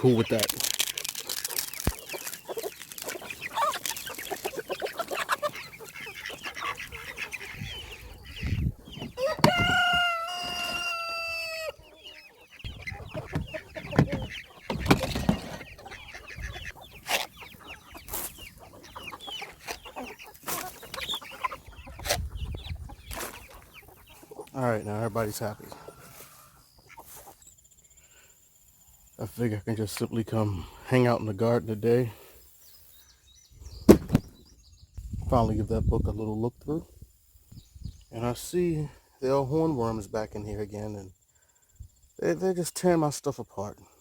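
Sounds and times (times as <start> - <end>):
chickens clucking: 0.0 - 43.8
rooster crowing: 9.2 - 11.8.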